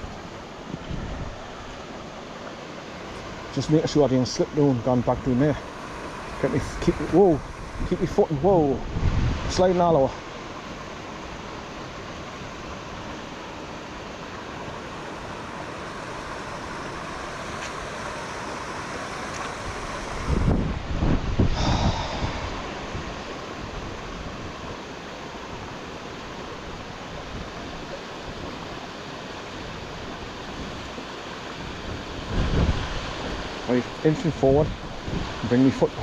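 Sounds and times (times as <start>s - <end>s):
wind buffeting microphone: 0.0s - 1.6s, 5.0s - 10.0s, 19.1s - 25.8s, 31.5s - 36.0s
river rushing: 0.0s - 36.0s.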